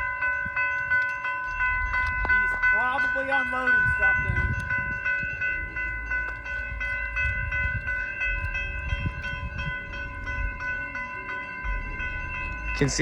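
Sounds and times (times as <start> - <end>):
crossing signal bells ringing: 0.0 - 13.0
low rumble: 3.8 - 13.0.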